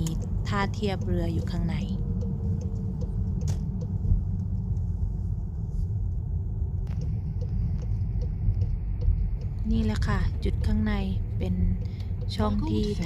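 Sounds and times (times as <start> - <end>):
car driving slowly: 0.0 - 13.0
faint ticks: 6.9 - 13.0.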